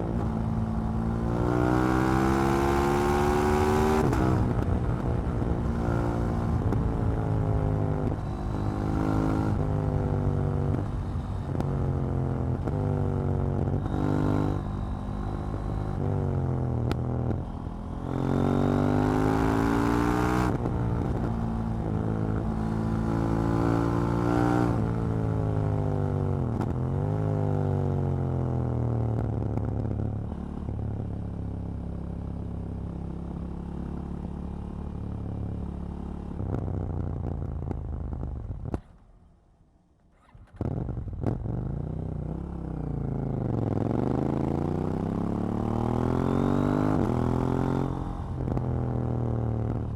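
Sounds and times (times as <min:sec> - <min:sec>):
motorcycle engine revving: 0:00.0 - 0:16.4, 0:40.1 - 0:49.9.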